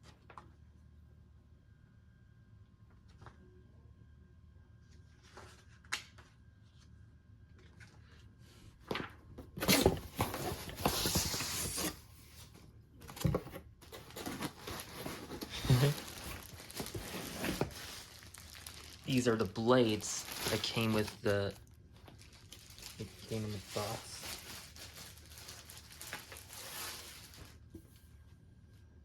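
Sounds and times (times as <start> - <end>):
packing material tearing and crinkling: 9.6 - 12.0, 13.9 - 27.6.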